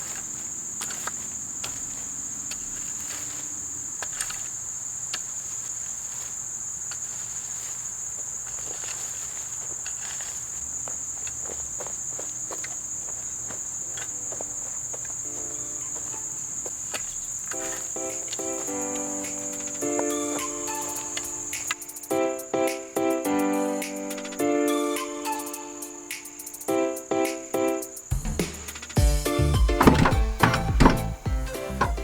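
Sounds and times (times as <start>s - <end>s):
insects chorus: 0.0s - 32.0s
faint music: 13.8s - 16.7s, 17.5s - 32.0s.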